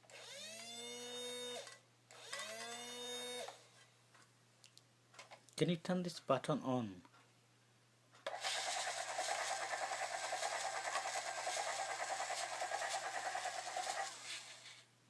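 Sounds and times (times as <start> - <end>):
toy helicopter rotor whirring: 8.3 - 14.8.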